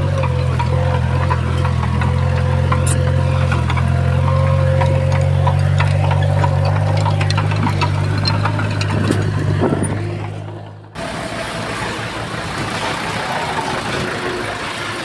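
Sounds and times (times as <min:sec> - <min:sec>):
short knocks and clanks: 0:00.0 - 0:11.1
diesel machine engine running: 0:00.0 - 0:15.0.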